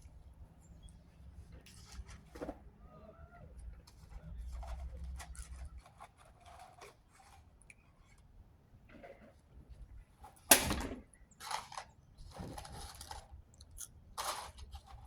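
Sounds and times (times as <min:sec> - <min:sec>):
small clicks and rustles: 0:03.6 - 0:08.3, 0:11.3 - 0:15.0.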